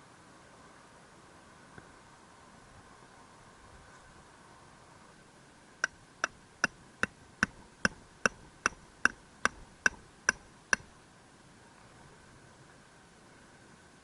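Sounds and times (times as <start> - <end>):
hammer striking metal tent peg: 7.4 - 10.9.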